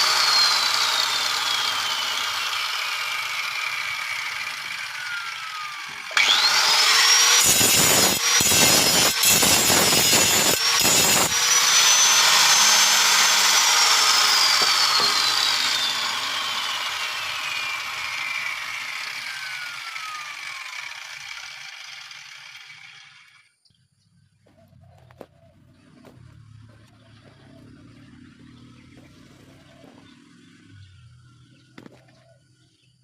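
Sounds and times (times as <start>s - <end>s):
grinder grinding metal: 0.0s - 23.4s
angle grinder whine: 0.0s - 23.5s.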